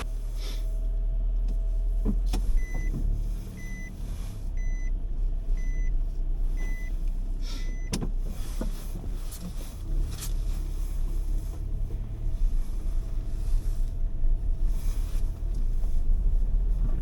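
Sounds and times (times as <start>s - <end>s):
wind rumble on microphone: 8.1s - 17.0s.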